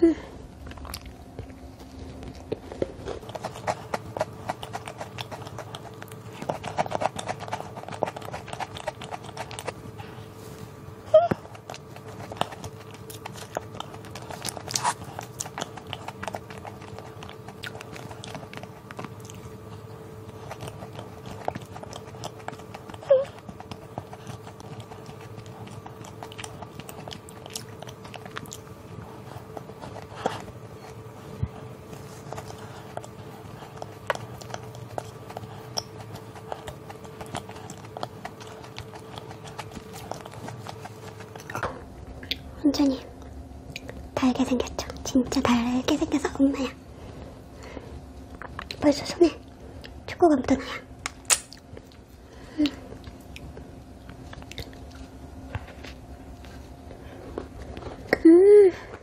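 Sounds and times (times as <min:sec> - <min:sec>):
faint steady hum: 0:00.0 - 0:59.0
biscuit crunching: 0:00.5 - 0:45.1, 0:51.0 - 0:58.2
lip smacks: 0:51.0 - 0:55.0.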